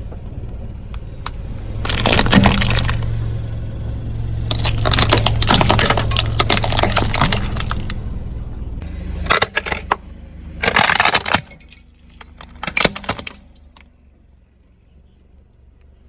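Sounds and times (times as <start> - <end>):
car engine hum: 0.0 - 16.0
tyre crushing brittle objects: 1.8 - 8.0, 9.2 - 10.0, 10.6 - 13.8.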